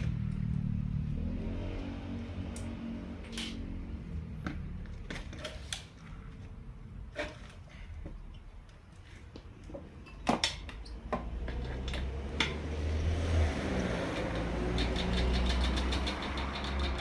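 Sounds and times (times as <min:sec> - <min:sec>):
sharp metallic clicks and knocks: 0:09.8 - 0:12.7, 0:13.6 - 0:17.0.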